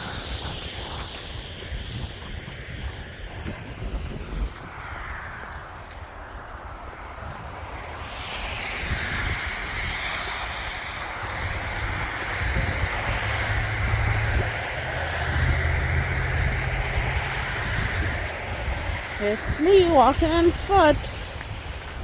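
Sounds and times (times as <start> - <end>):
snowstorm wind: 0.0 - 22.0
traffic: 4.7 - 22.0
low engine hum: 10.0 - 22.0.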